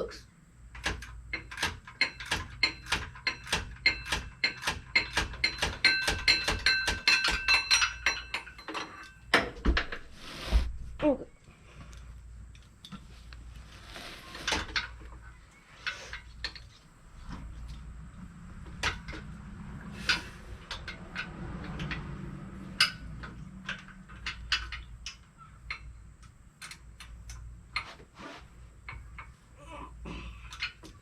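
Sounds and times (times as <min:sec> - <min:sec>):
metal hand tools clinking: 0:01.4 - 0:09.4.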